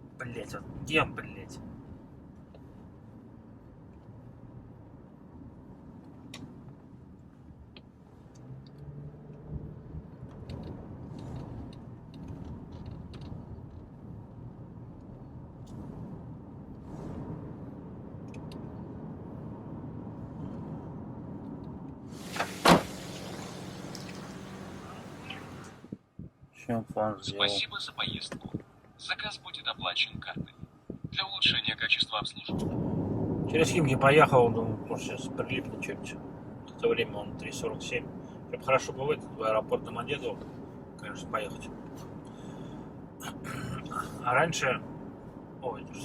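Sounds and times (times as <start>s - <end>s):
low rumble of car cabin: 0.0s - 46.0s
short rush of noise: 22.1s - 25.9s
car door clunk: 22.2s - 25.5s.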